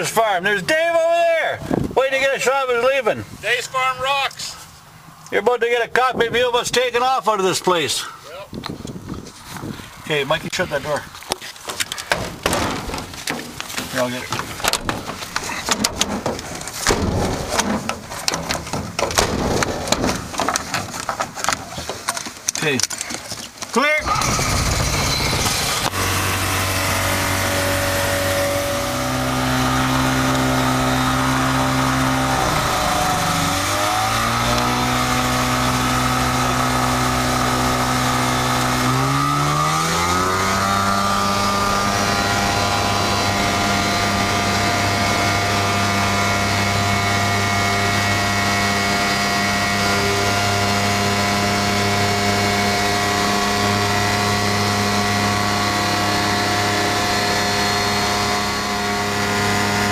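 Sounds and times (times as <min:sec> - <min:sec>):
light aircraft engine and propeller: 0:24.1 - 0:59.9.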